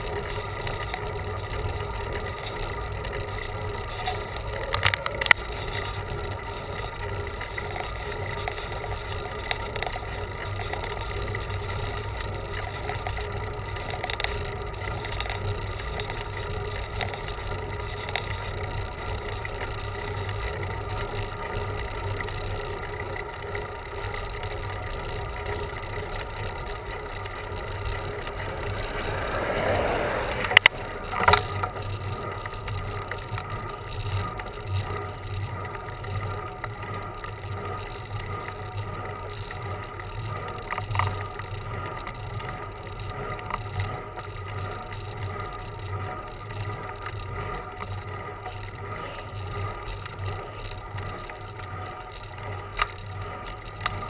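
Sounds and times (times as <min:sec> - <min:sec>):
bicycle rolling on road: 0:00.0 - 0:54.0
rushing sound: 0:28.1 - 0:31.2.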